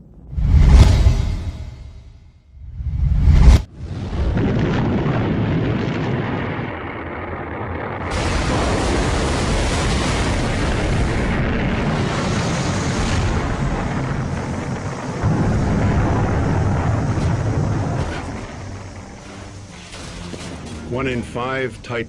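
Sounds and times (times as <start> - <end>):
rocket roaring and rumbling: 2.8 - 20.4.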